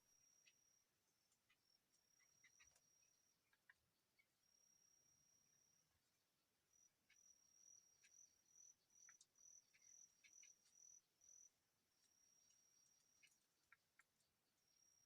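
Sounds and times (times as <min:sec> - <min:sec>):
faint ticks: 0:00.0 - 0:06.1, 0:06.7 - 0:15.0.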